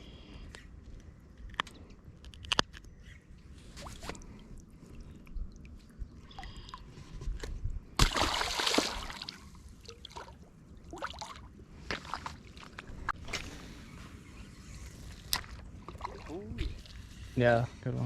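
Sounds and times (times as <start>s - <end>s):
small drips and clicks: 4.1s - 6.9s
loud splash: 8.0s - 9.4s
river water splashing at the bank: 8.0s - 11.4s.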